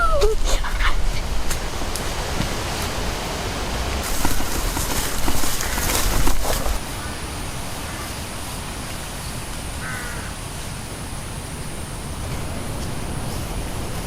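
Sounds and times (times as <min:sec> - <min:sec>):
outdoor background hiss: 0:00.0 - 0:14.0
rough rustling noise: 0:00.4 - 0:10.8.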